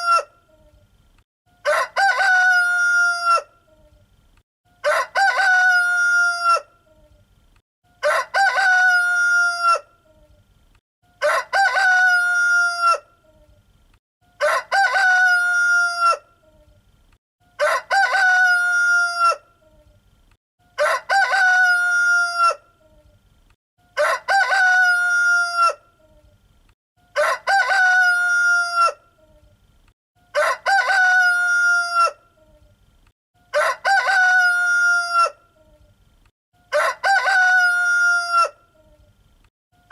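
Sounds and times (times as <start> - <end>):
rooster crowing: 1.6 - 3.5, 4.8 - 6.7, 8.0 - 9.9, 11.2 - 13.1, 14.4 - 16.2, 17.6 - 19.4, 20.8 - 22.6, 23.9 - 25.8, 27.2 - 29.0, 30.3 - 32.2, 33.5 - 35.4, 36.7 - 38.6.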